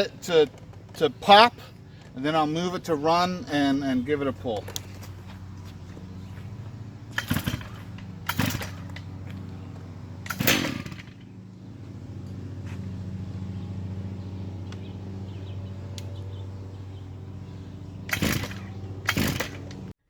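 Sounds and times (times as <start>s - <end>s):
low hum: 0.0s - 19.9s
chainsaw starter cord pulls: 7.1s - 9.1s, 10.2s - 11.3s, 18.1s - 19.9s.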